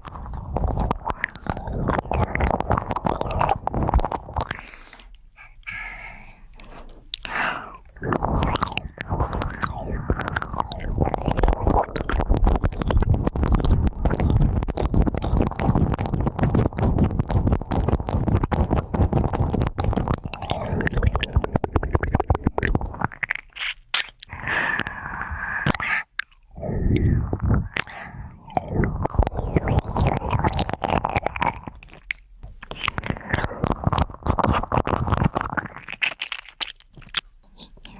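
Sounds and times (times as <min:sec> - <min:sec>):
ear pick scratching microphone: 0:08.0 - 0:24.2, 0:26.7 - 0:27.9, 0:28.5 - 0:36.6.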